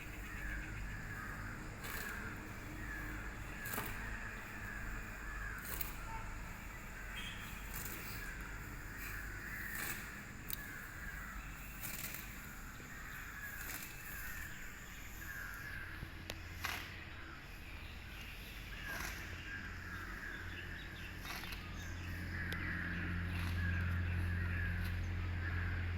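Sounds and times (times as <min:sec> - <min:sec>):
bird calling: 0:00.0 - 0:17.0, 0:18.7 - 0:25.9
faint clicks: 0:09.6 - 0:10.8.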